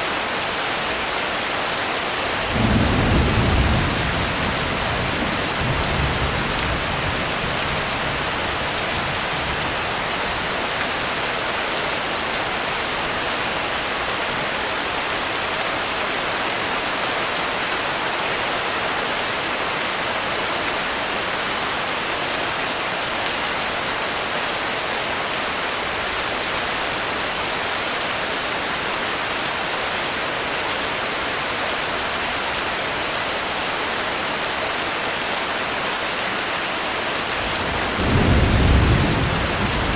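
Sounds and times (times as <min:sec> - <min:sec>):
heavy rain falling: 0:00.0 - 0:39.9
thunder rumble: 0:37.4 - 0:39.9.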